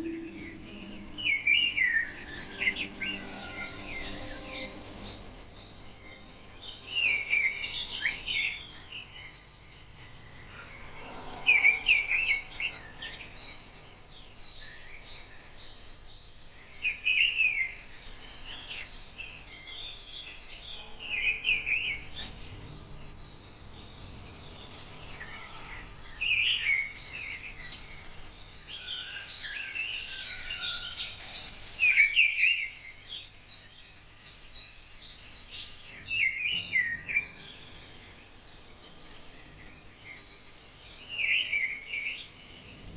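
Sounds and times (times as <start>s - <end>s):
faint bird chirping: 0.0s - 42.9s
loud birdsong phrases: 14.7s - 42.9s.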